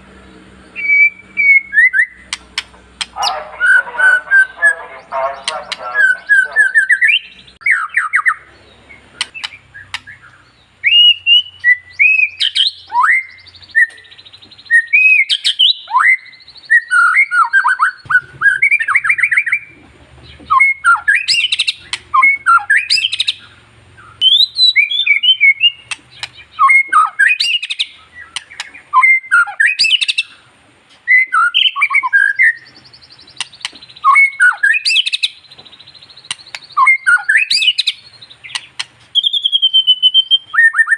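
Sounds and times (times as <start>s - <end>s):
bird singing whistled song: 0.3s - 4.7s, 5.4s - 30.4s, 31.0s - 40.9s.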